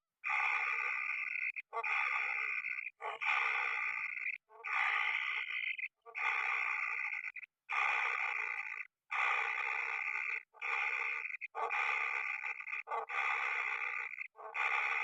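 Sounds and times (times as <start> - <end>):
bird chicks rasping calls: 0.3 - 8.2.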